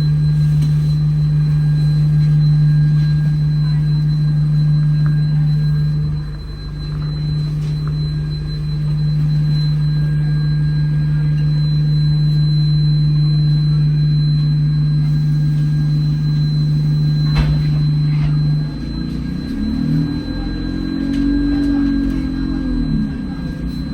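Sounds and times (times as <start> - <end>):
bus interior low drone: 0.0 - 23.9
thin high whine: 0.0 - 23.9.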